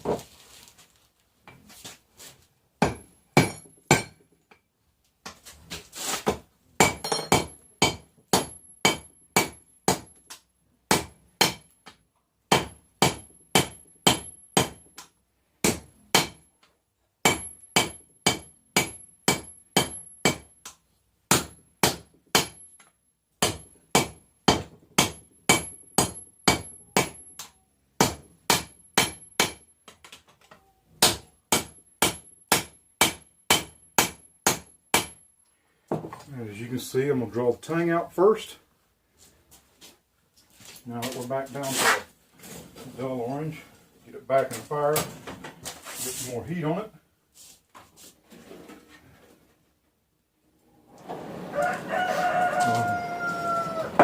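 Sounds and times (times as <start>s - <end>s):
hammer striking steel on anvil: 2.8s - 4.2s, 6.8s - 10.2s, 10.9s - 11.8s, 12.5s - 14.8s, 17.2s - 20.5s, 21.3s - 22.7s, 23.4s - 29.7s, 31.0s - 35.2s.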